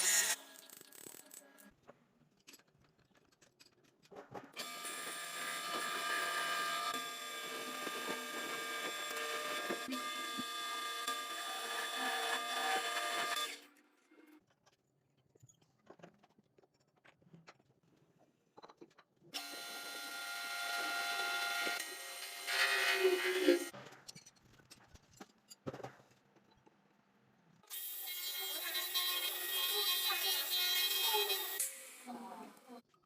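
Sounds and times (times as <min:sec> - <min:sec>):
tools being handled: 0:02.3 - 0:04.6
electric power tool motor: 0:04.6 - 0:13.6, 0:19.4 - 0:23.7.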